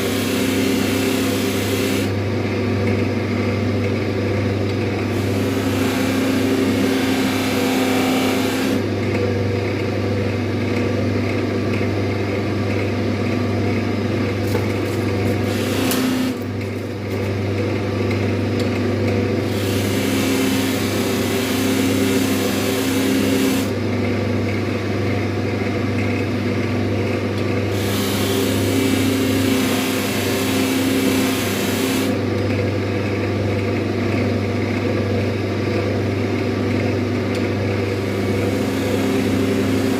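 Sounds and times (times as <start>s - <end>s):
chisel hissing on buffing wheel: 0.0s - 2.1s, 5.1s - 8.8s, 15.4s - 16.4s, 19.4s - 23.7s, 27.7s - 32.2s, 38.0s - 39.9s
buffing wheel motor hum: 0.0s - 3.1s, 4.6s - 9.6s, 14.2s - 24.4s, 26.5s - 33.5s, 37.3s - 39.9s.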